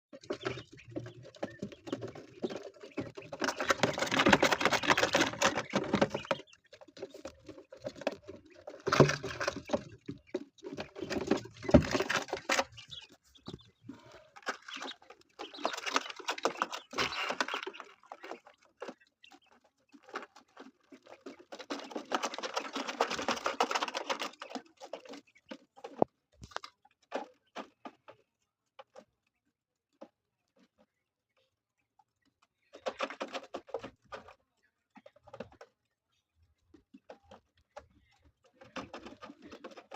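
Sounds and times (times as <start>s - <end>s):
chicks pecking taps: 0.1s - 39.9s
chicks rustling and scratching: 0.1s - 39.9s.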